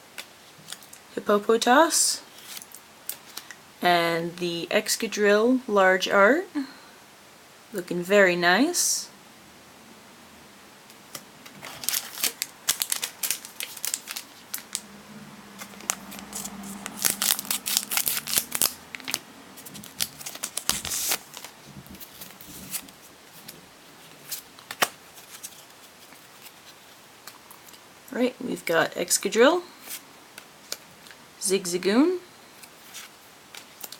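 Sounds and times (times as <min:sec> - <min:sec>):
foil wrapper tearing: 0:11.6 - 0:14.8, 0:15.6 - 0:21.5.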